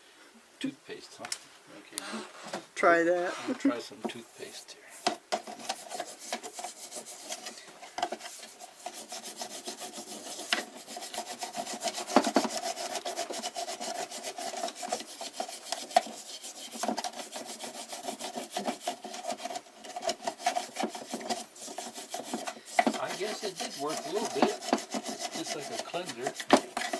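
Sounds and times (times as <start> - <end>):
fast scrubbing of scale: 5.4 - 7.6, 8.2 - 26.9.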